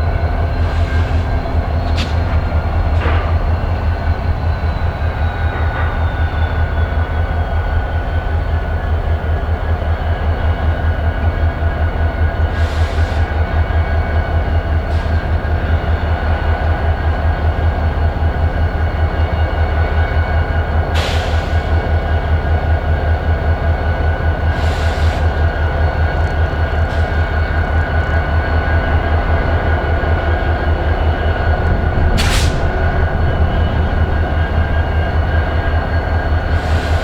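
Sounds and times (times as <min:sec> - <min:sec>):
diesel locomotive engine throbbing: 0:00.0 - 0:37.0.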